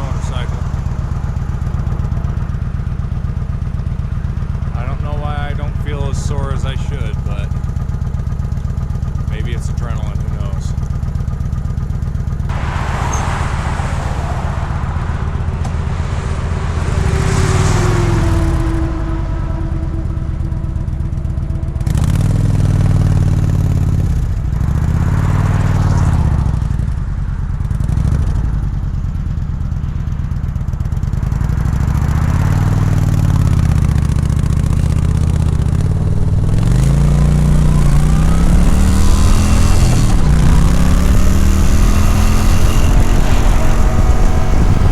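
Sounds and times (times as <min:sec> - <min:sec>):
motorcycle engine running: 0:00.0 - 0:44.9
wind noise: 0:12.4 - 0:21.8, 0:35.4 - 0:44.9.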